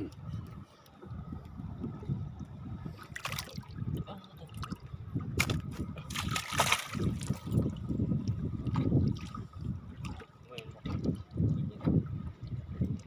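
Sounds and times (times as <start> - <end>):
steady low rumble: 0.0 - 13.0
river water splashing: 3.0 - 4.8, 5.4 - 7.8.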